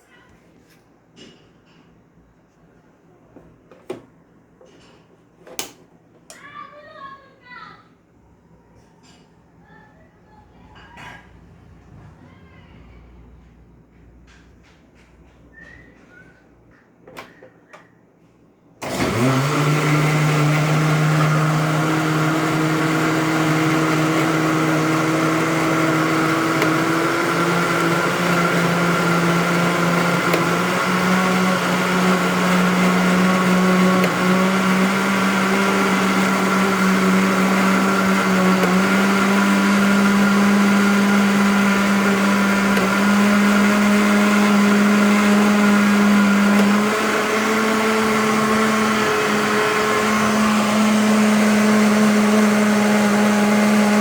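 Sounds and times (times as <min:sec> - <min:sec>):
blender motor whine: 0:18.8 - 0:54.0.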